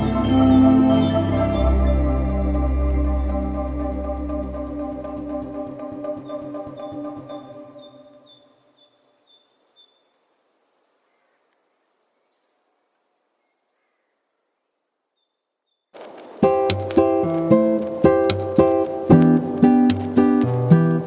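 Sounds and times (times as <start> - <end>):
strummed ukulele music: 0.0 - 6.9, 16.4 - 21.0
soft organ-like music: 0.0 - 8.5
small birds chirping: 0.0 - 21.0.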